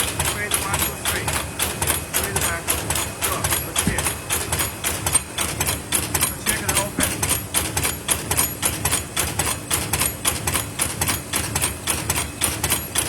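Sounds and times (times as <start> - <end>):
steady low hum: 0.0 - 8.5
machine clattering rhythmically: 0.0 - 13.0.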